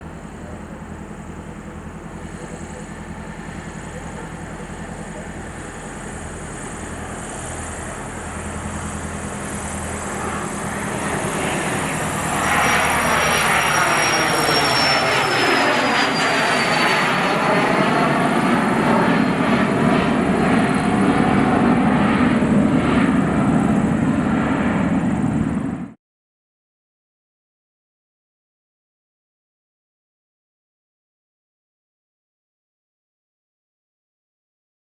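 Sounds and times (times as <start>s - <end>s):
high turbine whine: 0.0s - 26.0s
jet engines at takeoff power: 0.0s - 26.0s.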